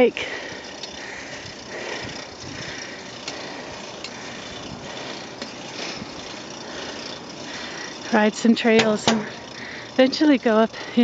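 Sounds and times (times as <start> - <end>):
bicycle road noise: 0.0 - 11.0
rushing wind: 0.4 - 8.4.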